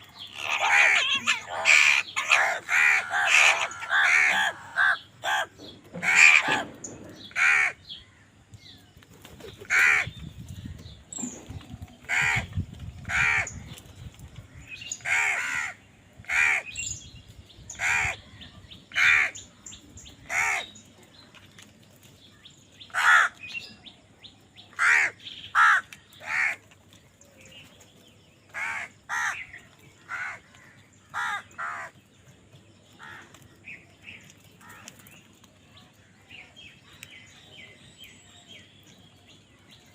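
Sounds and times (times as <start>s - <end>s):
crows cawing: 0.3s - 8.0s, 9.7s - 10.1s, 12.1s - 13.6s, 15.0s - 16.8s, 17.8s - 18.2s, 18.9s - 19.4s, 20.3s - 20.7s, 22.9s - 23.4s, 24.8s - 26.6s, 28.5s - 29.5s, 30.1s - 32.0s, 33.0s - 33.3s.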